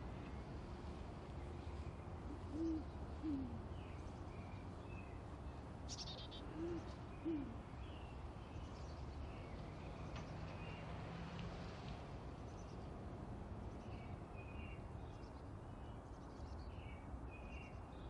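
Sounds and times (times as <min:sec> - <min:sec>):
bird's low two-note hooting: 0:06.6 - 0:07.6.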